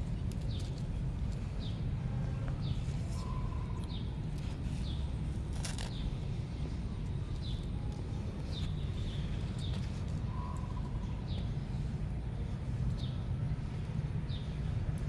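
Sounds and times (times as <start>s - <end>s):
steady low rumble: 0.0s - 15.0s
bird chirping: 2.6s - 6.2s, 7.0s - 15.0s.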